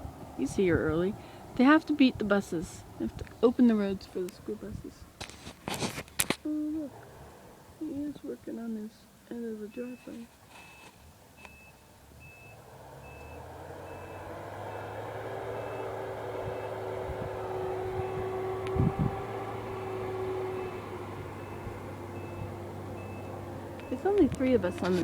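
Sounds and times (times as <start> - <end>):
truck engine: 0.0 - 25.0
reversing alarm beeping: 9.8 - 25.0.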